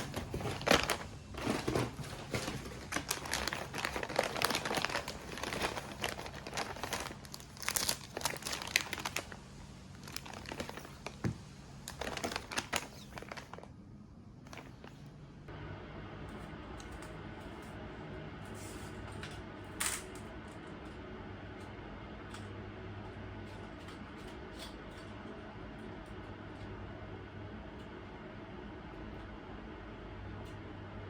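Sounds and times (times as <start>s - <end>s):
packaging crinkling and rustling: 0.0s - 13.8s, 14.5s - 15.0s.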